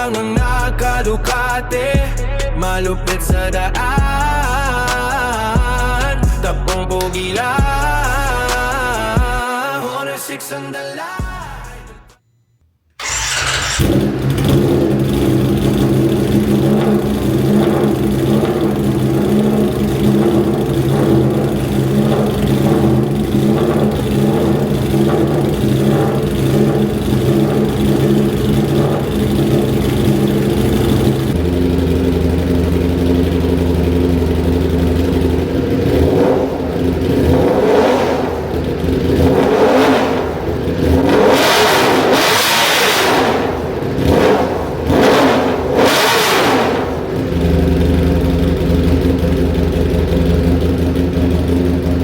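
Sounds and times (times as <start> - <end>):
motorcycle engine idling and revving: 0.0 - 9.4, 13.0 - 52.0.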